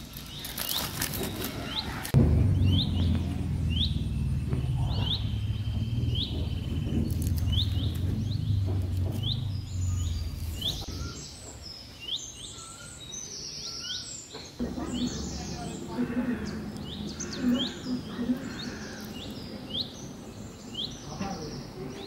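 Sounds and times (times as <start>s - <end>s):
small bird chirping: 0.1s - 22.0s
steady low rumble: 2.0s - 11.2s.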